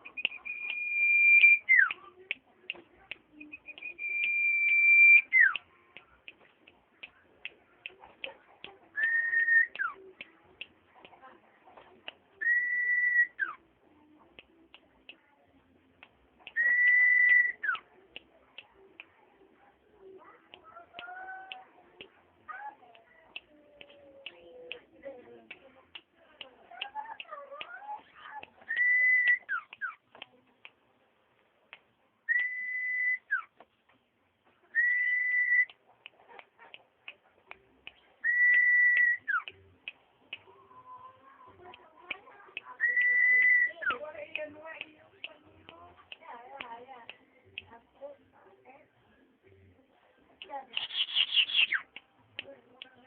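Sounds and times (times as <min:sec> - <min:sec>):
bird whistling: 0:00.0 - 0:01.9, 0:03.5 - 0:05.6, 0:09.0 - 0:09.9, 0:12.4 - 0:13.5, 0:16.6 - 0:17.8, 0:28.7 - 0:30.0, 0:32.3 - 0:33.5, 0:34.7 - 0:35.7, 0:38.2 - 0:39.5, 0:42.8 - 0:43.8, 0:50.8 - 0:51.8
bird whistling long notes: 0:00.1 - 0:01.9, 0:03.6 - 0:05.5, 0:12.4 - 0:13.4, 0:32.3 - 0:33.4, 0:34.8 - 0:35.7
bird chips: 0:50.8 - 0:51.8.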